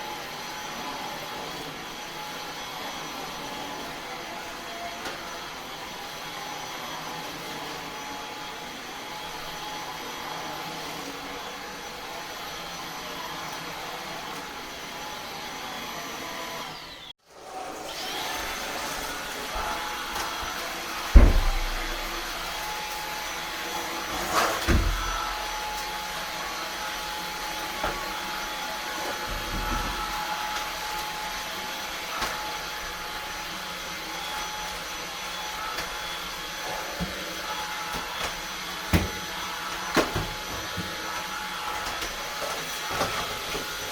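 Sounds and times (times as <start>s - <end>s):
stick vacuum running: 17.4s - 43.9s
loud knock: 21.1s - 22.3s.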